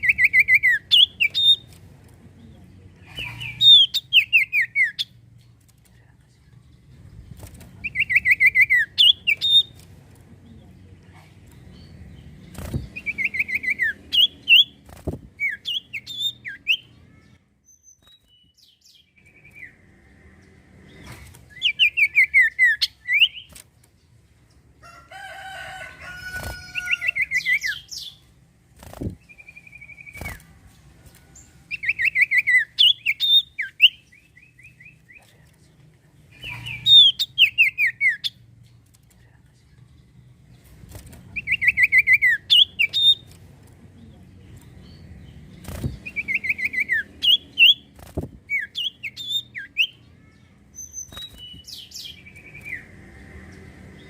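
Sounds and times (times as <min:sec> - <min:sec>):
sharp clicks or flutters: 0:30.0 - 0:31.2.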